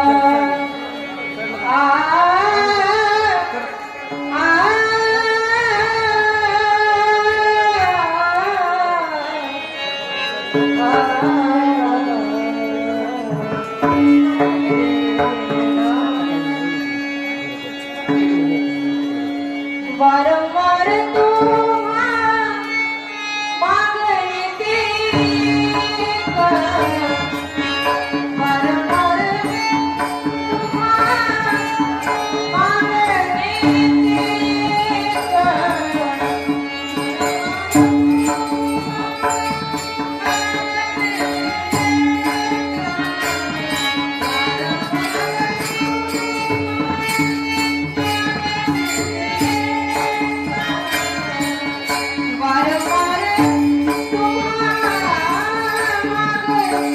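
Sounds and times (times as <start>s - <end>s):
woman singing devotional song: 0.0s - 17.2s, 19.6s - 56.9s
hand drum: 13.5s - 16.4s, 25.1s - 56.9s.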